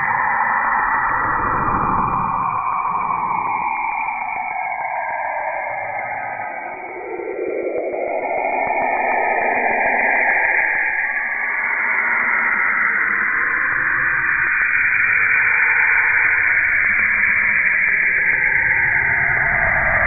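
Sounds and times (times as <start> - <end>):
low rumble: 0.5 - 3.8.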